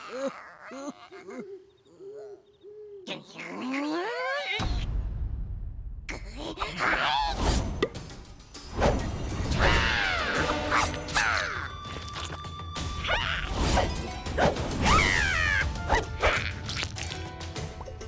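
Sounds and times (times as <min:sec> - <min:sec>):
playful cartoon music: 0:06.6 - 0:18.0.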